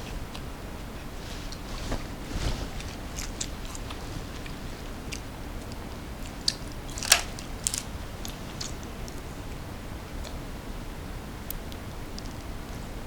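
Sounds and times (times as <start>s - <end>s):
chewing crunchy snack: 2.9s - 9.2s.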